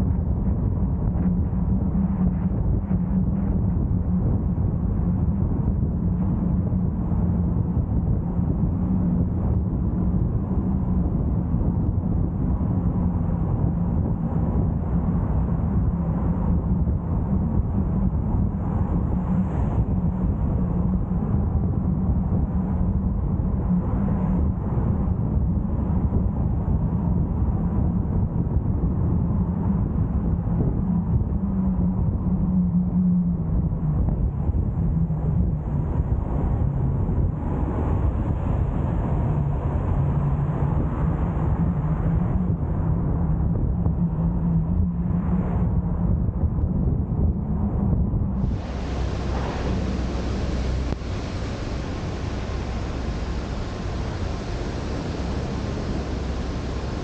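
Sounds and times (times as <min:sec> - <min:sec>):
car driving on road: 0:48.4 - 0:57.0.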